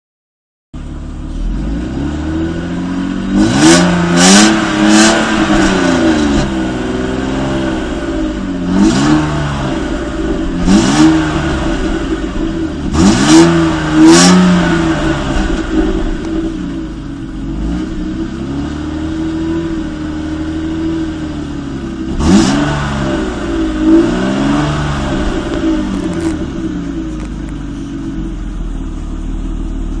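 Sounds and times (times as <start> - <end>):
car engine revving: 0.8 - 30.0
sharp exhaust cracks: 21.8 - 28.5.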